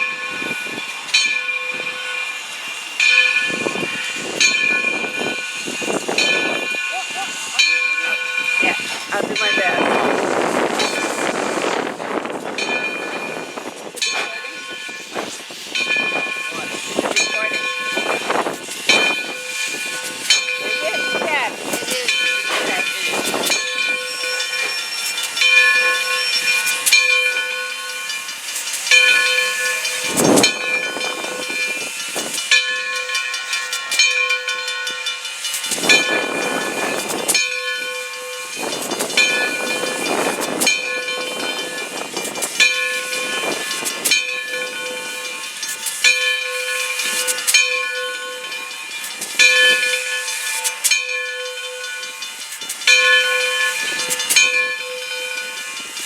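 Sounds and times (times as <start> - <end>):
locomotive bell ringing: 0.0 - 56.0
bursts of hissing: 5.0 - 12.7.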